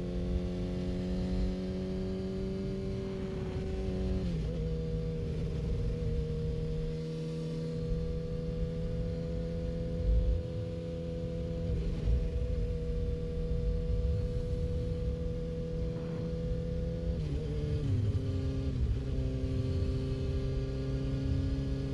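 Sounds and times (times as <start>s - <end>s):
motorcycle engine cruising: 0.0s - 21.9s
wind rumble on microphone: 9.9s - 10.7s, 11.6s - 21.9s.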